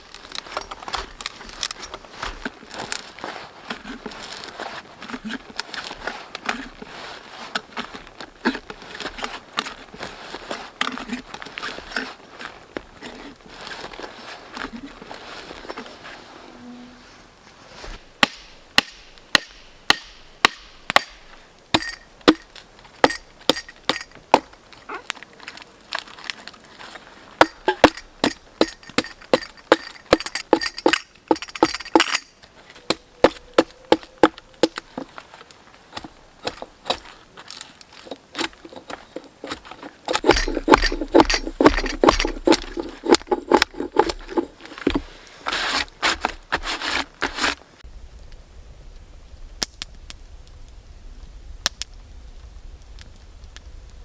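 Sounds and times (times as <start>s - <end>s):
hand tool strokes on wood: 38.0s - 47.6s.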